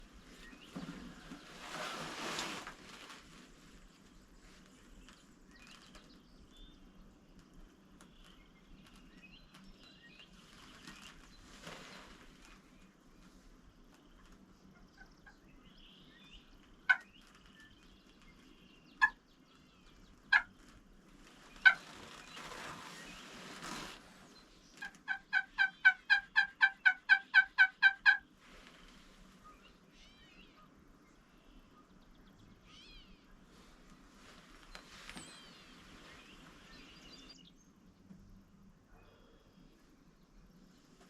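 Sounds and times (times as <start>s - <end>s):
small birds chirping: 3.7s - 28.2s, 28.8s - 41.0s
turkey clucking: 16.9s - 17.1s, 20.3s - 20.5s, 21.6s - 22.0s, 24.8s - 28.2s
turkey yelping: 24.8s - 28.2s.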